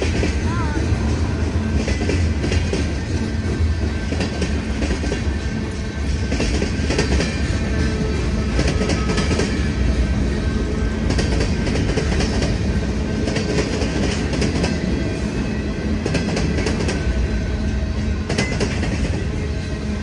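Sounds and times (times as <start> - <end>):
freight cars rumbling: 0.0 - 20.0
wheels clacking over rail joints: 0.0 - 20.0.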